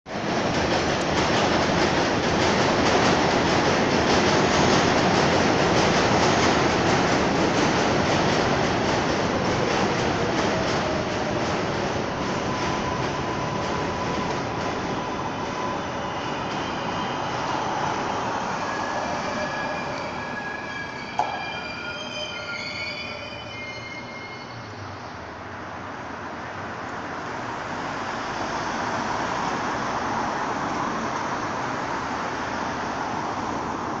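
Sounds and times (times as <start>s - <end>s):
train rumble: 0.1s - 22.4s
train wheels squealing: 12.2s - 25.2s.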